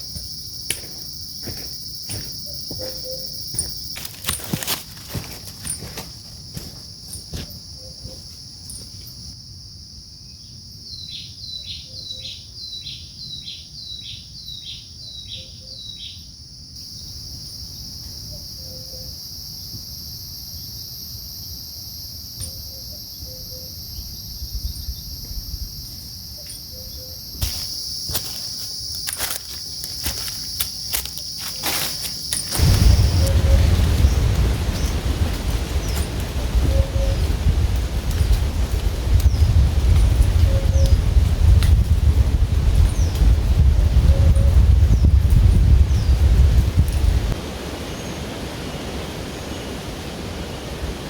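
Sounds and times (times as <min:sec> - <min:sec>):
footsteps: 0:00.0 - 0:09.2, 0:27.3 - 0:40.4
crickets shrilling: 0:00.0 - 0:50.1
rustling: 0:27.4 - 0:43.6.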